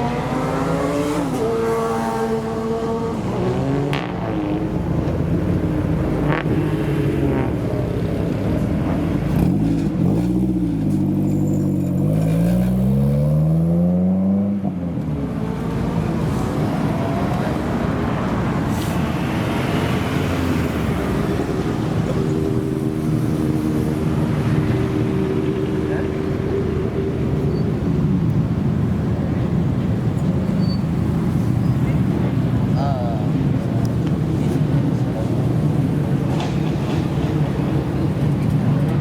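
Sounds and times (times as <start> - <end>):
car engine and exhaust revving: 0.0 - 39.0
steady rushing engine noise: 15.2 - 39.0.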